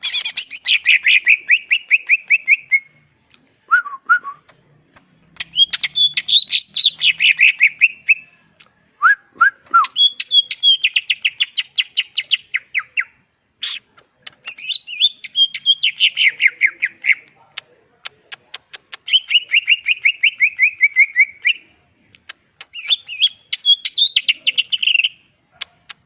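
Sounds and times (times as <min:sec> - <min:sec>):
bird singing whistled notes: 0:00.0 - 0:03.0, 0:05.4 - 0:08.4, 0:09.0 - 0:13.8, 0:14.4 - 0:17.2, 0:19.1 - 0:21.7, 0:22.7 - 0:25.2.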